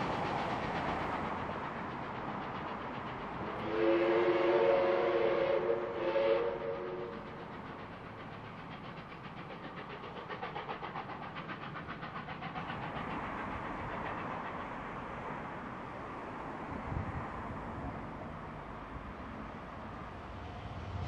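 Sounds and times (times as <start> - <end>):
electric train running noise: 0.0 - 21.0
train running noise pulsing: 0.0 - 21.0
multi-note train horn: 3.5 - 7.2.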